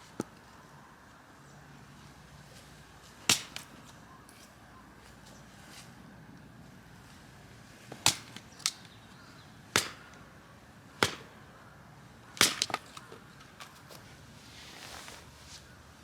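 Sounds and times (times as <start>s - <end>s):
sharp knocks or chops: 11.0s - 11.3s.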